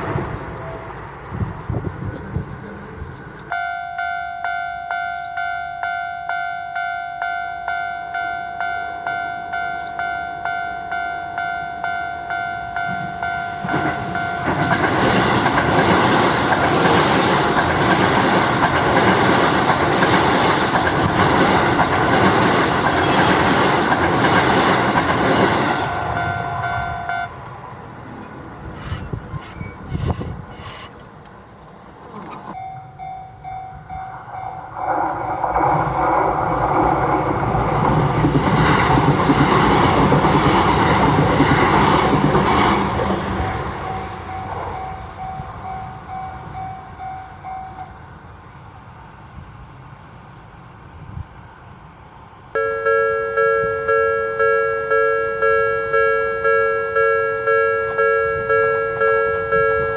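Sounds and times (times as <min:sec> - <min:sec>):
electric train passing: 0:00.0 - 0:59.9
level-crossing alarm two-tone clang: 0:03.5 - 0:15.8, 0:24.8 - 0:27.4, 0:52.6 - 0:59.9.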